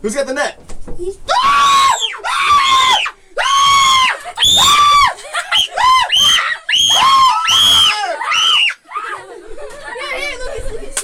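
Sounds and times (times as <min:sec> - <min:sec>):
people screaming: 0:01.3 - 0:09.4.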